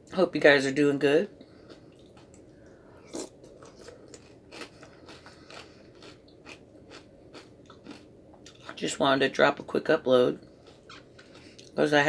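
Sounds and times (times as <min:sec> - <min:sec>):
person chewing crunchy food: 0:01.5 - 0:08.8, 0:10.4 - 0:11.8.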